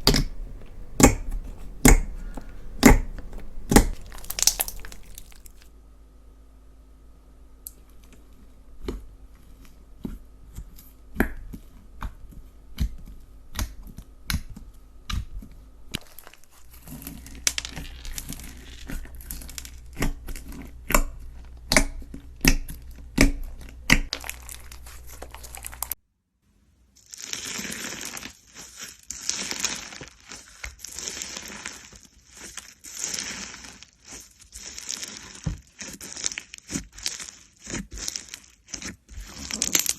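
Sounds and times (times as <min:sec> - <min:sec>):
slime squeezed by hand: 0:01.0 - 0:05.7.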